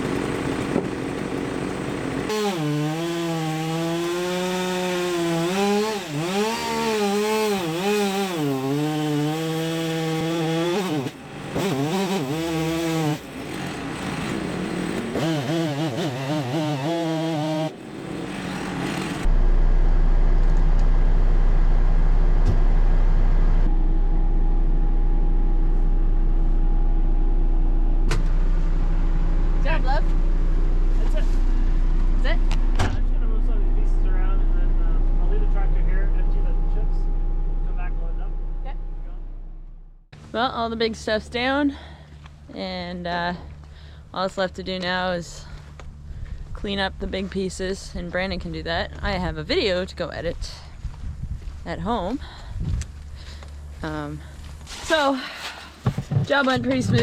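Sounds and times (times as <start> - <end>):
low engine drone: 0.0 - 2.4, 17.6 - 55.7
chainsaw cutting: 0.0 - 19.3.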